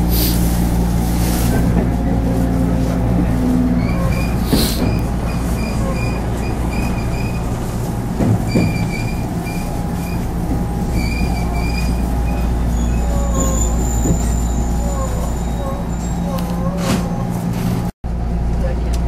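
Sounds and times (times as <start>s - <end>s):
train wheels and motors rumbling: 0.0s - 19.0s
high-pitched wheel squeal: 3.8s - 7.6s, 8.5s - 17.3s.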